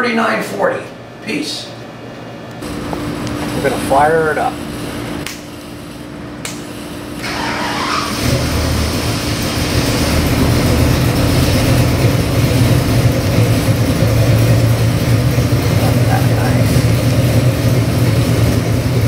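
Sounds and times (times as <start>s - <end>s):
engine cranking: 7.2s - 14.9s
engine idling: 7.2s - 19.0s.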